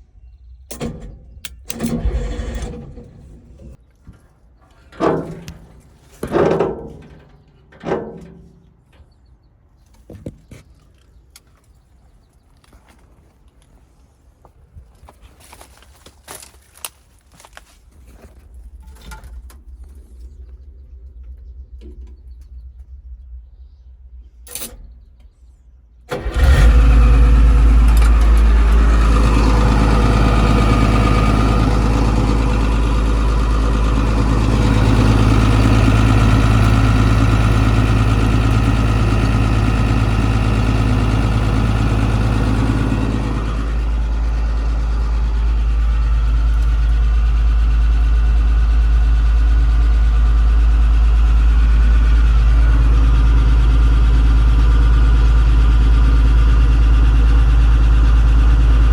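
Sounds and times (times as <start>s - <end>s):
diesel engine starting and running: 0.0s - 9.8s, 18.3s - 58.9s
click: 0.7s - 2.0s.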